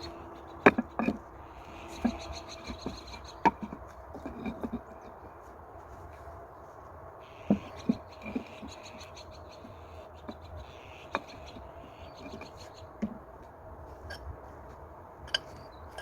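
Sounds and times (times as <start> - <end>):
scraping: 0.6 - 6.4.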